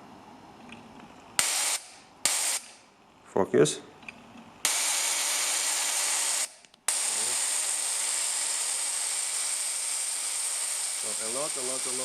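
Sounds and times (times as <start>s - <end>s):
igniter sparking hiss: 1.4s - 2.8s, 4.6s - 12.0s.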